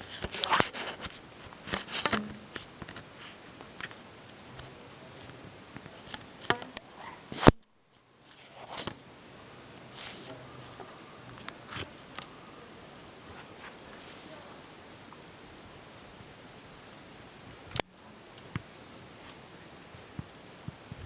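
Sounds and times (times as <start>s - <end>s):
sharp clicks and light knocks: 0.0s - 6.8s
rustling: 0.0s - 21.0s.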